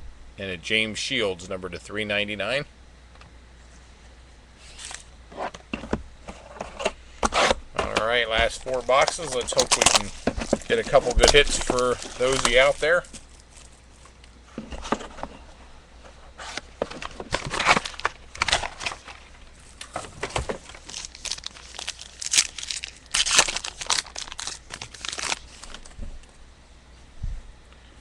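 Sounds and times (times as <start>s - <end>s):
wrapping crinkling and tearing: 8.1s - 14.3s, 16.5s - 26.0s.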